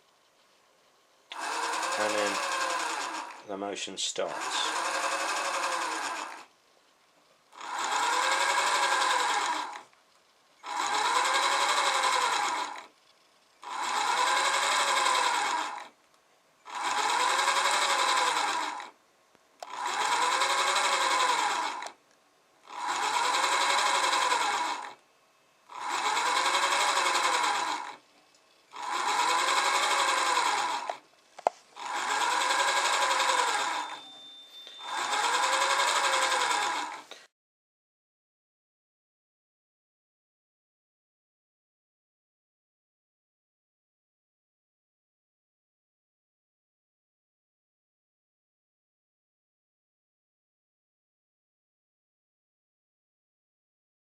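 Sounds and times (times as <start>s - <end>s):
small electric motor whining: 1.3s - 3.6s, 4.2s - 6.5s, 7.5s - 9.9s, 10.6s - 13.0s, 13.6s - 16.0s, 16.6s - 19.0s, 19.6s - 22.0s, 22.6s - 25.0s, 25.7s - 28.0s, 28.7s - 31.0s, 31.7s - 37.2s.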